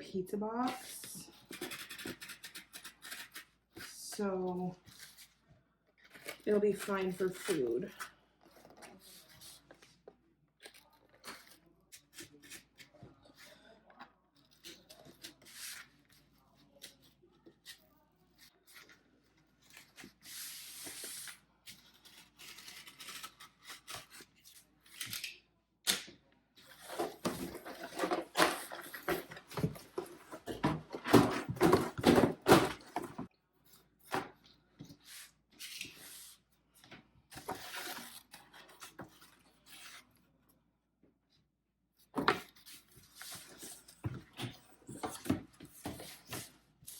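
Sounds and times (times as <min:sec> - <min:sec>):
cardboard being cut and torn: 0:19.6 - 0:25.2.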